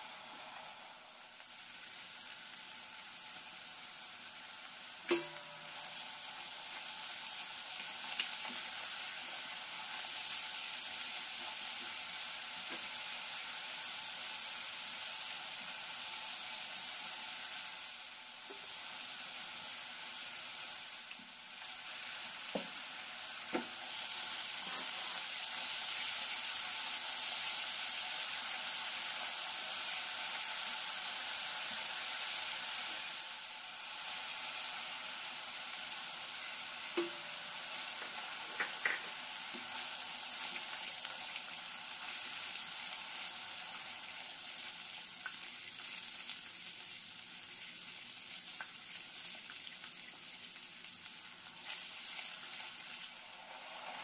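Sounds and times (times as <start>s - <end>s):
food sizzling in hot oil: 0.0s - 54.0s.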